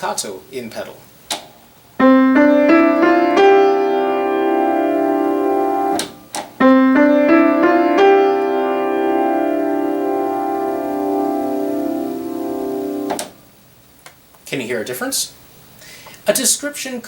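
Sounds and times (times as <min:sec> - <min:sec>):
piano playing staccato notes: 0:02.0 - 0:13.4.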